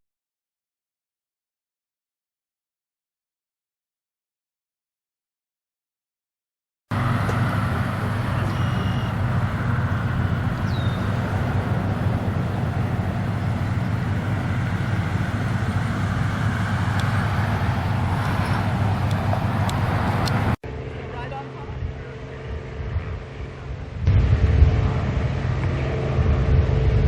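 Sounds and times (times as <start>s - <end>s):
outdoor rumble: 6.9s - 20.6s, 23.3s - 27.0s
low hum: 6.9s - 27.0s
faint high chirp: 8.1s - 11.6s.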